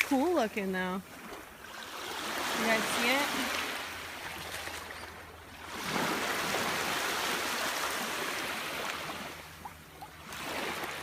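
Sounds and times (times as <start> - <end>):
waves washing over rocks: 5.7 - 9.5.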